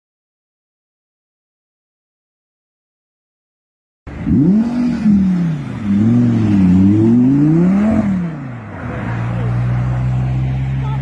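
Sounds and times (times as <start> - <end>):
vehicle engine revving: 4.1 - 11.0.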